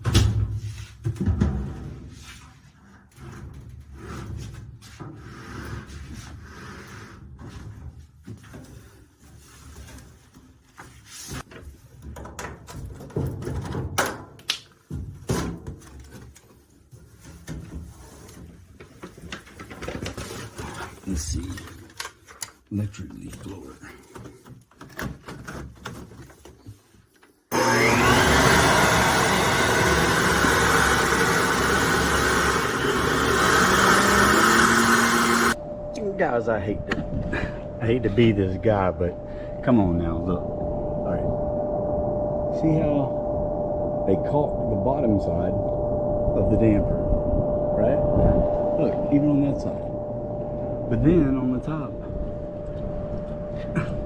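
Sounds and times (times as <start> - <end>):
things being handled: 7.4 - 27.4
electric leaf blower running: 27.5 - 35.6
low steady hum: 35.5 - 54.0.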